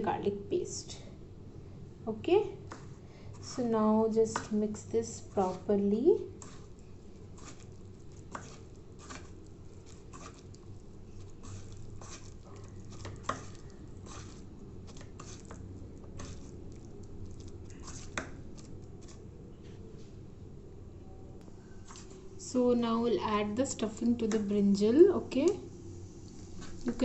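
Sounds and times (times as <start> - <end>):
stuffing squelching in bowl: 6.4 - 19.2.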